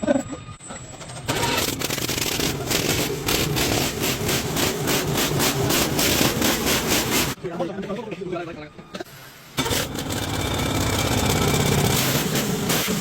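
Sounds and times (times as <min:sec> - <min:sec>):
large engine running: 0:09.6 - 0:13.0.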